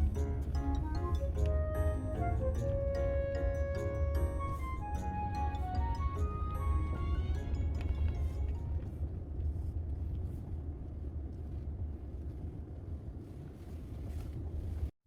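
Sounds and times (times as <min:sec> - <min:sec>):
music track: 0:00.0 - 0:09.0
low rumble: 0:00.0 - 0:14.9.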